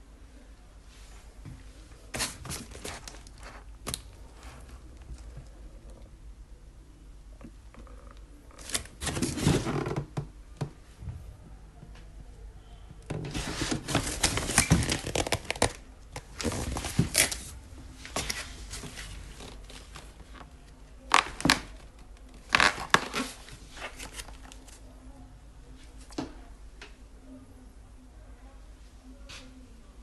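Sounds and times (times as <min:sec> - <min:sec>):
crinkling and rustling: 0:01.0 - 0:06.1, 0:07.3 - 0:11.0, 0:13.0 - 0:25.0.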